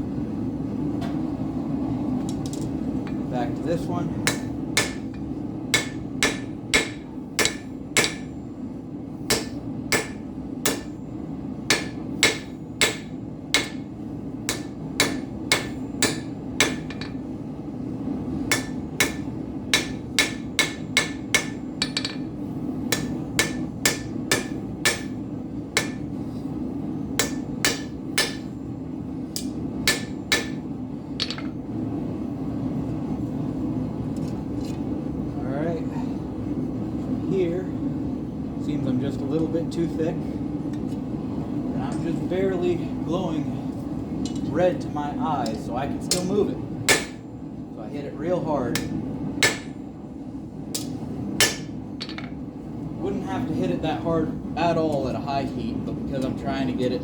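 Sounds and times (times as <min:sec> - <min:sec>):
forge running: 0:01.8 - 0:32.1
hammer striking steel on anvil: 0:04.2 - 0:05.2, 0:05.8 - 0:08.4, 0:09.2 - 0:11.0, 0:11.7 - 0:13.9, 0:14.5 - 0:17.2, 0:18.5 - 0:22.3, 0:22.9 - 0:25.2, 0:25.8 - 0:26.1, 0:27.2 - 0:28.5, 0:29.3 - 0:30.6, 0:31.2 - 0:31.6, 0:45.4 - 0:47.2, 0:48.7 - 0:49.8, 0:50.8 - 0:52.4.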